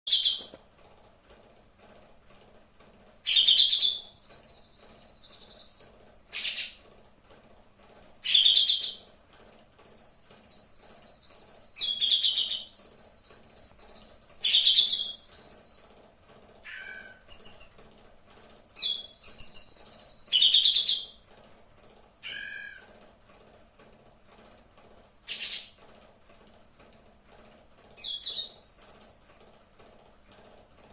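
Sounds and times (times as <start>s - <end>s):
songbird calling: 22.1s - 22.9s.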